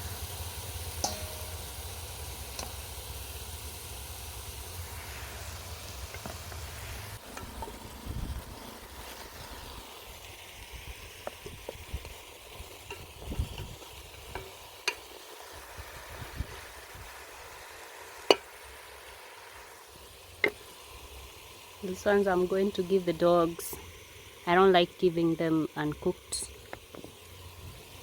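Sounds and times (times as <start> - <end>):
food sizzling in a pot: 0.0 - 28.0
low rumble: 6.7 - 9.8.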